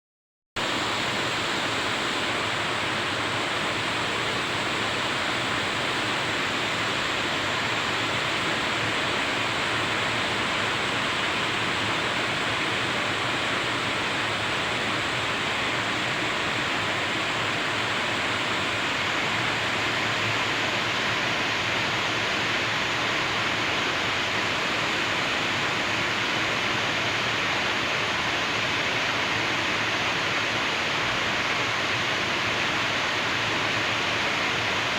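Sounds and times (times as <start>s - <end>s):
steady rain hiss: 0.6s - 34.9s.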